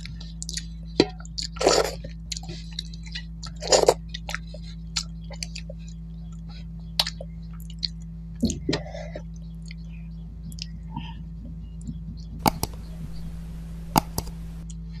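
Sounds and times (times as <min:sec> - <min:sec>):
mouth clicks and smacks chewing: 0:00.0 - 0:13.3
steady low hum: 0:00.0 - 0:15.0
sharp click: 0:12.4 - 0:14.6.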